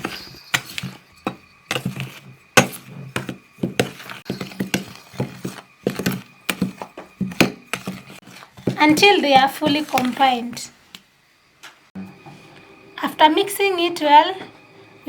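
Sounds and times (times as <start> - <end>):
utensil knocking and scraping bowl: 0.0 - 11.0.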